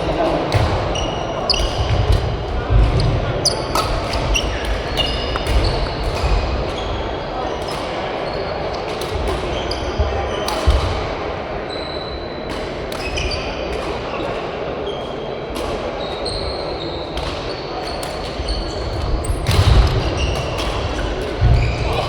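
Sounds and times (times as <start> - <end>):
shoes squeaking on court floor: 0.0 - 10.5, 15.9 - 22.0
echoing hall background: 0.0 - 22.0.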